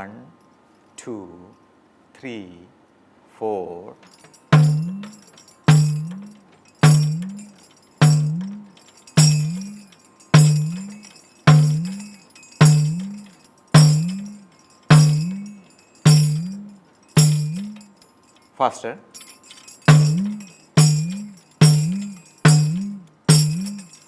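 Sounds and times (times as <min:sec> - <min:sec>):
tambourine jingles: 0:04.0 - 0:24.0
frame drum booming strokes: 0:04.4 - 0:17.9, 0:19.2 - 0:24.0.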